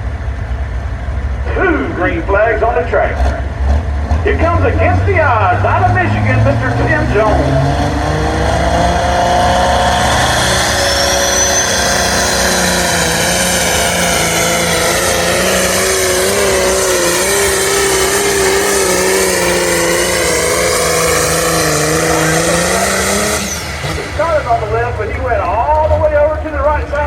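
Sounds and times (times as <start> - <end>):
tractor engine running flat out: 0.0 - 27.0
turbo whistle: 9.7 - 24.0.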